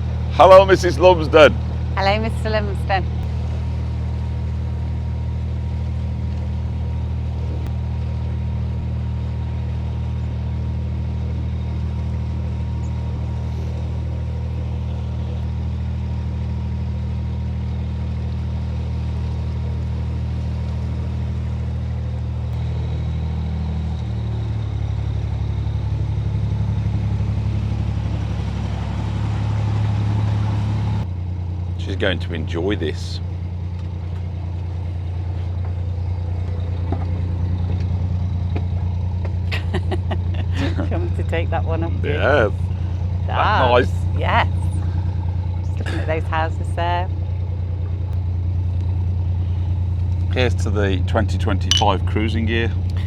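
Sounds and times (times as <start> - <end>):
boat diesel engine humming: 0.0 - 53.0.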